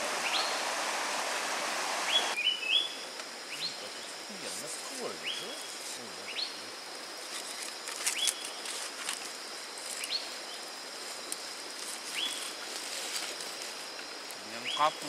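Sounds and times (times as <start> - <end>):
forest background noise: 0.0 - 15.0.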